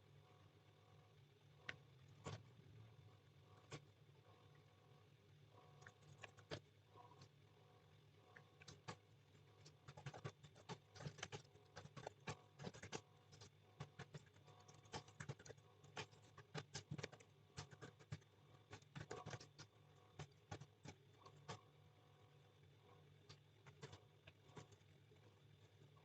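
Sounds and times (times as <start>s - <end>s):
low steady hum: 0.0s - 26.0s
computer keyboard typing: 9.9s - 18.2s, 18.8s - 21.6s.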